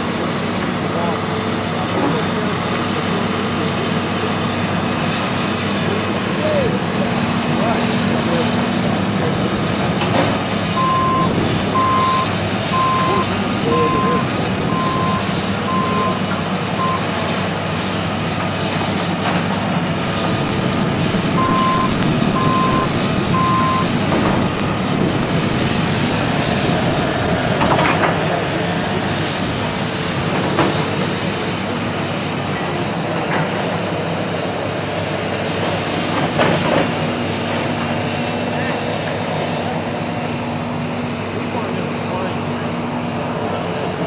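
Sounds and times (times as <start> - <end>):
heavy construction machinery running: 0.0 - 44.0
back-up alarm beeping: 10.7 - 16.2, 16.8 - 17.2, 21.2 - 24.6.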